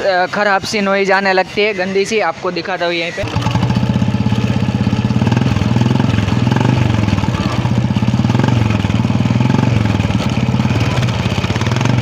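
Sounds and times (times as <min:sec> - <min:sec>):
motorcycle engine running: 0:03.2 - 0:12.0.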